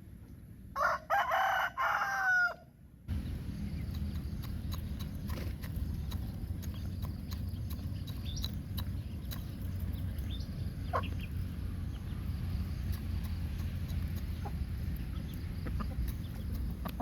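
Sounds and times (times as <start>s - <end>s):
steady low rumble: 3.0s - 17.0s
chickens clucking: 3.1s - 17.0s.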